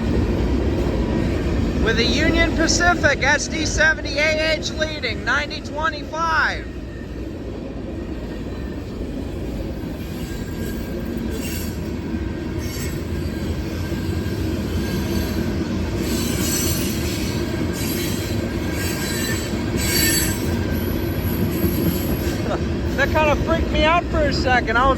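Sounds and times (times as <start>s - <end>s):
freight train rumbling past: 0.0s - 24.9s
train wheels squealing on rails: 6.5s - 24.9s.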